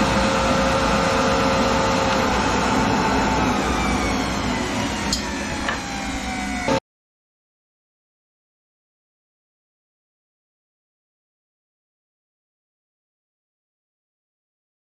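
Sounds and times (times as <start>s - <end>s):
planer and vacuum whine: 0.0s - 6.8s.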